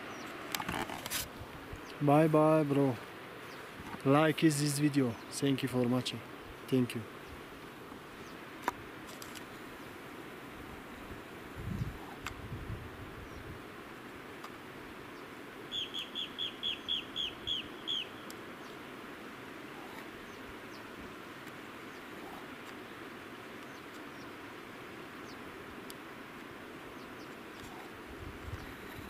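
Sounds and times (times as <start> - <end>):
bird downward-slurred calls: 15.7 - 18.3.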